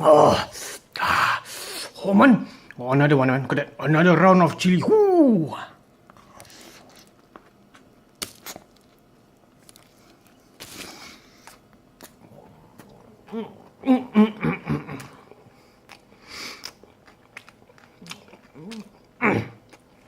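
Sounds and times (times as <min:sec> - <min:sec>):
man grunting and groaning: 0:04.8 - 0:05.6
man chewing with mouth clicks: 0:15.8 - 0:20.0.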